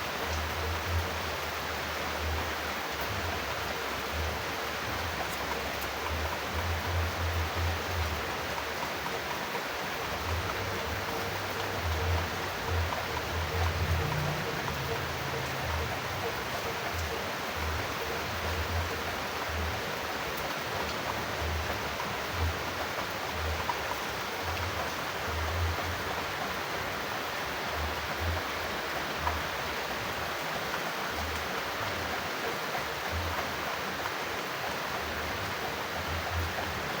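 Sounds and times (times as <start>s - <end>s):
steady rain: 0.0s - 37.0s.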